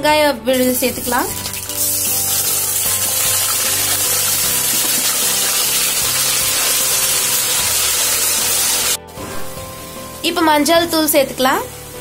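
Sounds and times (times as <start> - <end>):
onion paste sizzling in hot oil: 0.8 - 12.0
spatula stirring: 1.4 - 8.3.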